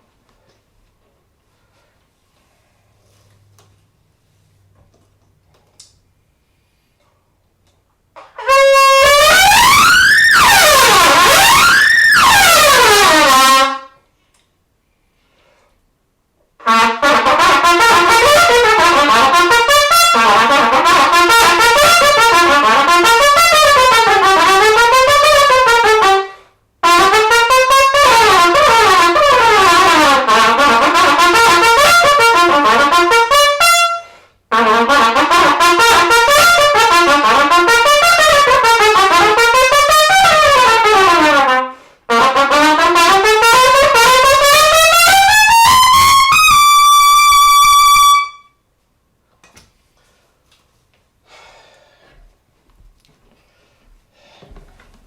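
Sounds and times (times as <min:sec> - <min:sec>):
solo trumpet fast runs: 0:08.4 - 0:13.9, 0:16.6 - 0:48.5.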